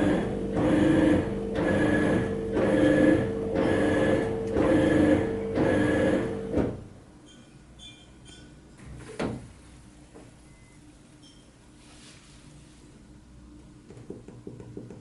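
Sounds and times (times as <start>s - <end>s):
washing machine drum churning: 0.0s - 7.0s
washing machine motor humming: 0.0s - 7.2s.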